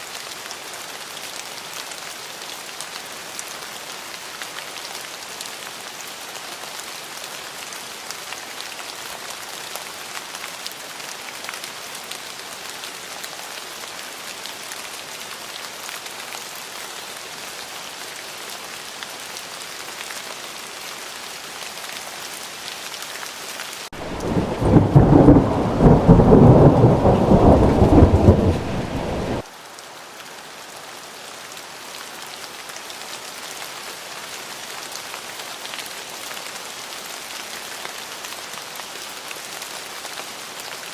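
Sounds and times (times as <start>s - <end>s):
rain hissing: 23.8s - 29.5s
thunder rumble: 24.0s - 29.4s.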